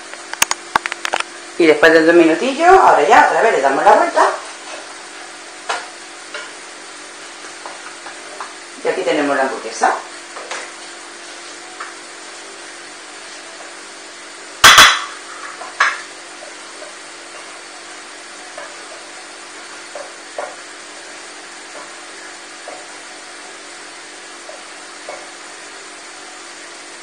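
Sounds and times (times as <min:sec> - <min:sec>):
patty sizzling on a griddle: 0:04.2 - 0:09.0, 0:10.0 - 0:27.0
spatula tapping and scraping: 0:05.6 - 0:06.6, 0:07.3 - 0:08.6, 0:18.4 - 0:20.8, 0:21.6 - 0:23.1, 0:24.4 - 0:25.4.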